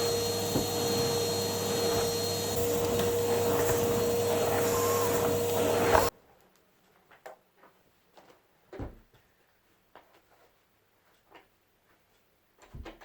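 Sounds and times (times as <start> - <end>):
vacuum cleaner motor whine: 0.0 - 6.1.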